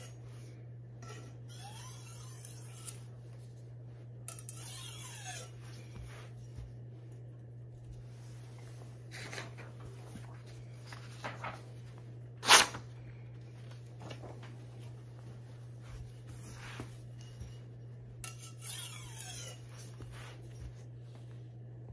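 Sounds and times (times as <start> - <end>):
steady low hum: 0.0 - 21.9
knife scraping on sharpening stone: 1.0 - 3.0, 4.3 - 5.6, 18.2 - 19.9.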